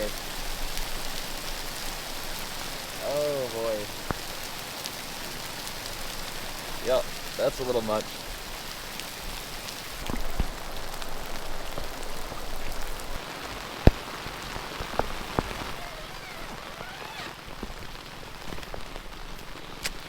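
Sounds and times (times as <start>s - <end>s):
heavy rain pouring: 0.0s - 20.0s
large raindrops tapping: 0.0s - 20.0s.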